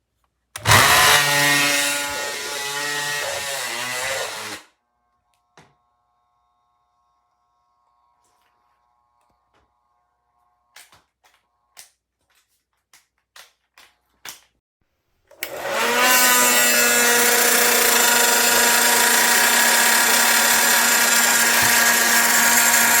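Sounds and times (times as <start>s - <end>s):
hair dryer blowing: 0.6s - 4.6s, 15.4s - 23.0s.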